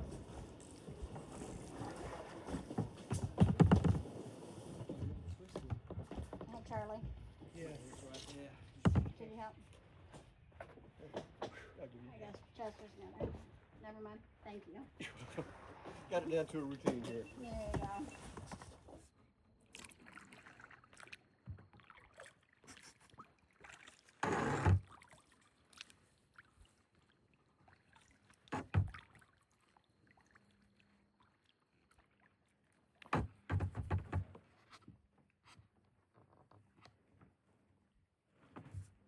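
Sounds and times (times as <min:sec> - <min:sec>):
paddle knocking against hull: 0:00.9 - 0:07.6, 0:08.8 - 0:09.4, 0:28.5 - 0:29.1, 0:33.0 - 0:34.6
water splashing: 0:15.0 - 0:18.2, 0:19.7 - 0:33.0.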